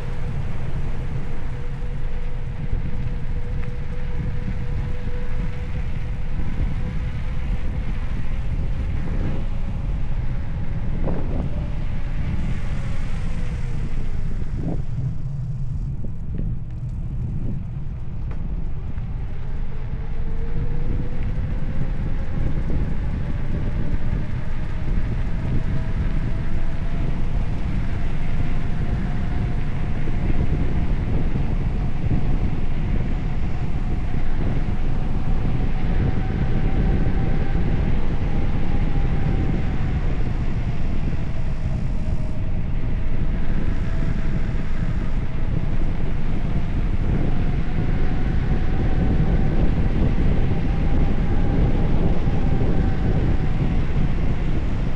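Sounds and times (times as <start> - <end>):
thin whine: 0.0 - 54.9
wind buffeting microphone: 0.0 - 54.9.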